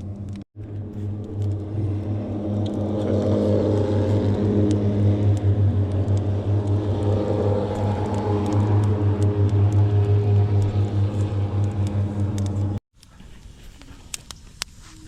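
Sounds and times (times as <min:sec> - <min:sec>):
wood fire crackling and popping: 0:00.0 - 0:00.4, 0:03.6 - 0:14.8
low engine-like hum: 0:00.0 - 0:12.8.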